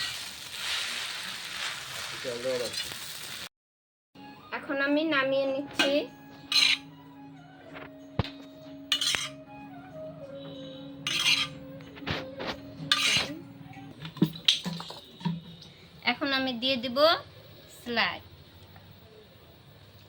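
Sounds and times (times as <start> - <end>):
metal spatula scraping wok: 5.8 - 6.9, 8.9 - 9.4, 11.0 - 13.4.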